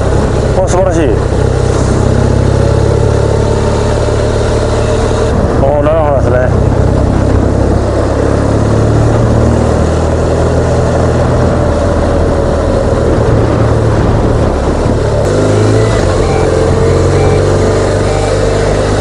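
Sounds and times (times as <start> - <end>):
motorcycle engine running: 0.0 - 19.0
wind rushing past microphone: 5.0 - 19.0.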